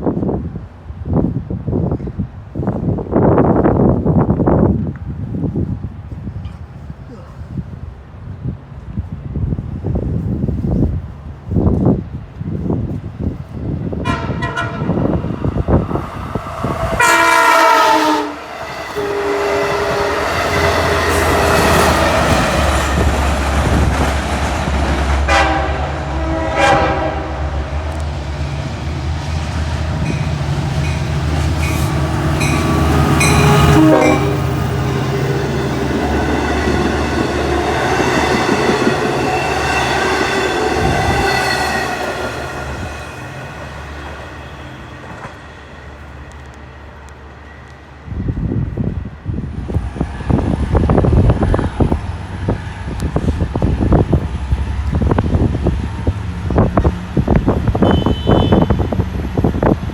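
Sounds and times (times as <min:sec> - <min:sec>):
train rumbling on rails: 0:00.0 - 0:59.9
train horn blasts: 0:14.0 - 0:15.9, 0:16.6 - 0:23.0, 0:25.2 - 0:27.6, 0:30.0 - 0:35.4, 0:36.2 - 0:42.2, 0:57.7 - 0:59.0.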